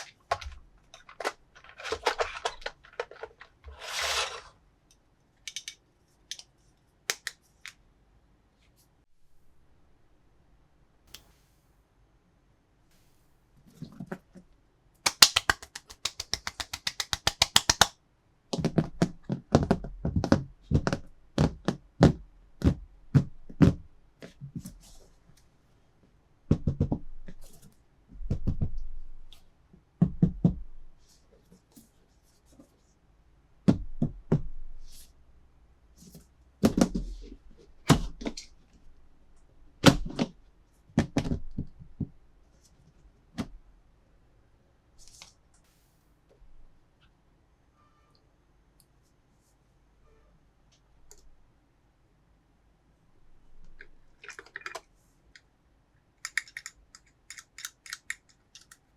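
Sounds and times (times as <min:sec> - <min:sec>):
plastic toys knocking: 0:00.0 - 0:04.5, 0:15.1 - 0:17.9
plastic toy clicks rattling: 0:56.2 - 0:58.9.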